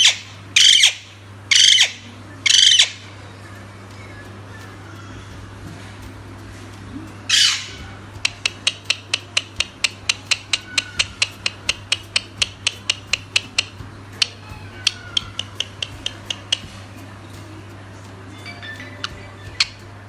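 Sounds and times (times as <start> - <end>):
parakeet squawking: 0.0 - 3.0
sharp evenly spaced clicks: 0.0 - 20.0.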